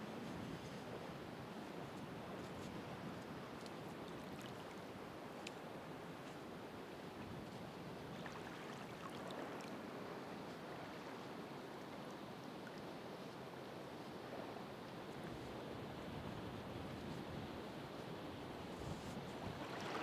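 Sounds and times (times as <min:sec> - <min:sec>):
ocean surf washing: 0:19.4 - 0:20.0.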